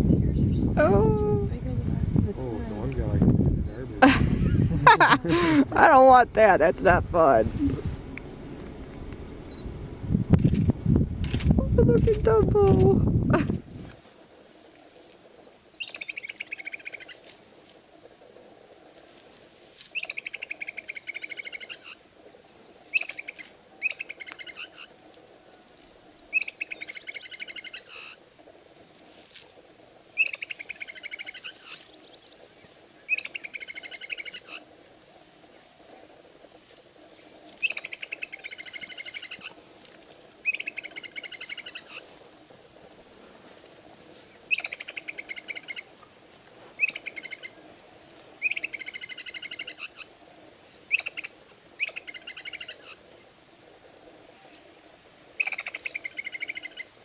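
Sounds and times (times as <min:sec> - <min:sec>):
faint steady hum: 0:00.0 - 0:57.0
songbird trilling: 0:15.4 - 0:17.3, 0:19.9 - 0:24.9, 0:26.2 - 0:28.2, 0:29.8 - 0:34.6, 0:37.6 - 0:42.0, 0:44.4 - 0:46.1, 0:46.8 - 0:47.6, 0:48.4 - 0:50.1, 0:50.9 - 0:53.0, 0:55.4 - 0:56.9.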